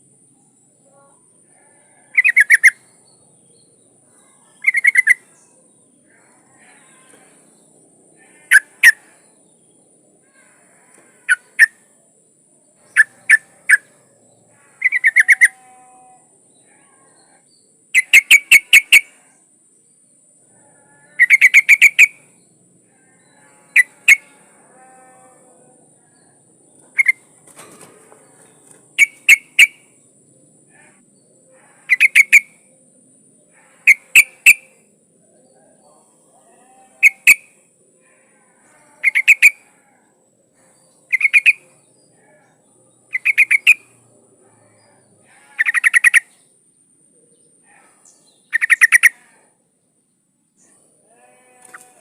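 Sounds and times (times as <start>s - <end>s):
bird chirping sharp notes: 28.6s - 29.9s.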